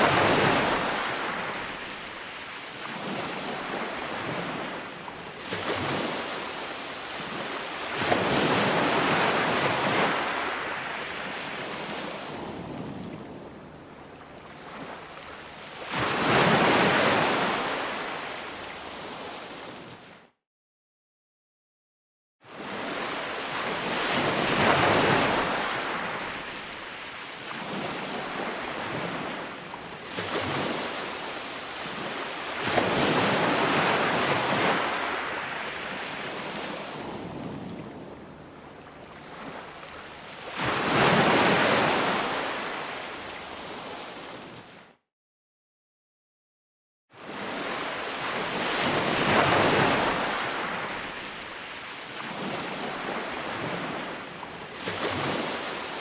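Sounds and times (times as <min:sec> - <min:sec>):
ocean waves breaking: 0:00.0 - 0:20.2, 0:22.5 - 0:44.8, 0:47.2 - 0:56.0.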